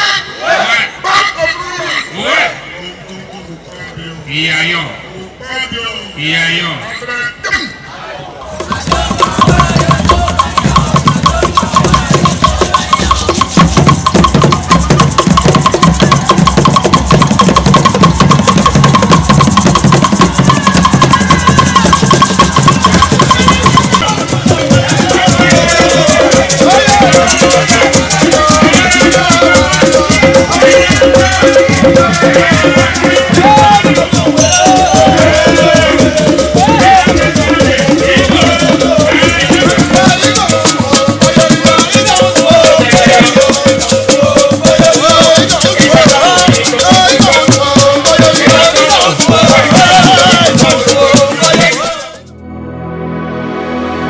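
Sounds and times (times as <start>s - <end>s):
voices singing: 7.4s - 52.3s
drums and shaken rattles: 8.5s - 52.3s.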